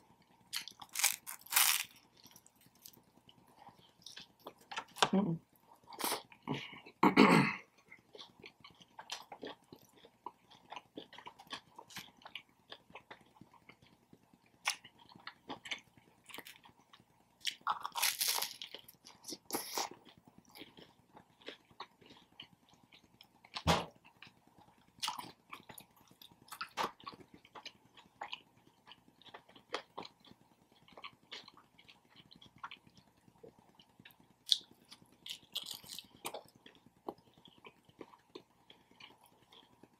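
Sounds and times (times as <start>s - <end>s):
person chewing: 0.1s - 7.0s, 7.8s - 39.9s
biting into sandwich: 0.6s - 1.9s.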